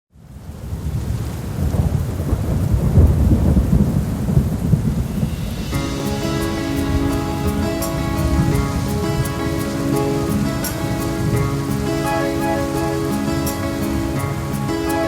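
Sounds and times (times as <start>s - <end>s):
steady rain: 0.1s - 15.0s
low rolling thunder: 0.5s - 14.1s
music with sustained chords: 5.4s - 15.0s.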